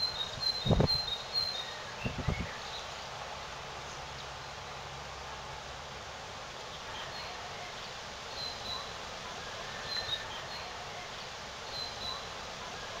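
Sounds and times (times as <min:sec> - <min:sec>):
blackbird singing: 0:00.0 - 0:02.9
wind on microphone: 0:00.3 - 0:01.1, 0:02.0 - 0:02.6.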